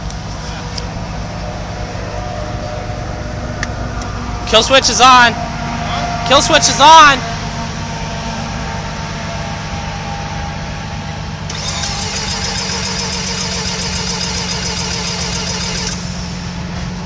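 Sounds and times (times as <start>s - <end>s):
high-pitched whine: 0.3s - 17.0s
engine cranking without firing: 11.5s - 16.6s.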